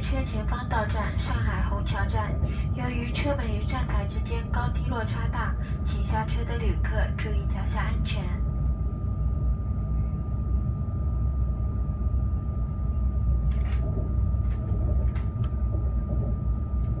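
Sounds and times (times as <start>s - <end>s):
train low rumble: 0.0s - 17.0s.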